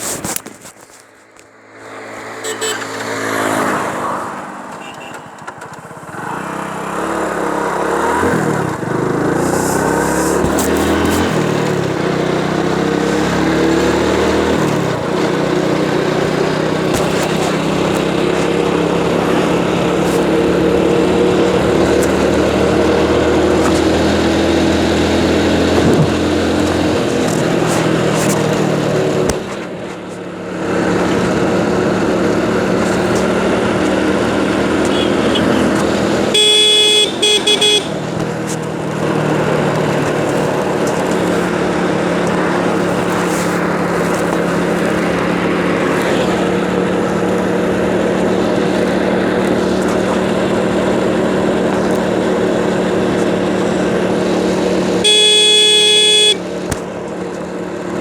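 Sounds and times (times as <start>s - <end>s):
motorcycle engine running: 0.0s - 58.0s
vehicle horn: 2.2s - 3.9s, 4.7s - 5.5s, 34.8s - 38.1s, 55.0s - 56.5s.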